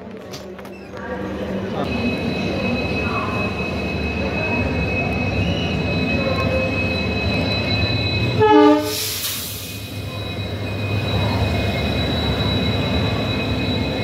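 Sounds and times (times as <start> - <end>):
train rumbling past: 0.0 - 14.0
locomotive horn blast: 8.4 - 9.2
locomotive hiss: 8.8 - 12.3.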